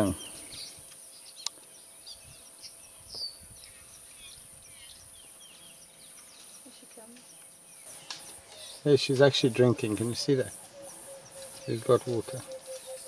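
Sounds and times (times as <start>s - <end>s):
small birds chirping: 0.0s - 13.0s
steady high hiss: 7.5s - 13.0s.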